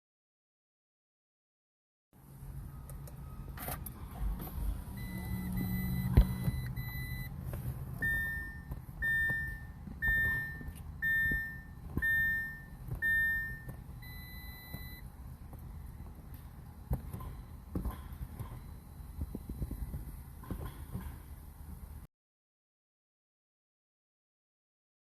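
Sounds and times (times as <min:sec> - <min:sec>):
electronic beeps: 0:04.9 - 0:07.4, 0:08.0 - 0:15.1.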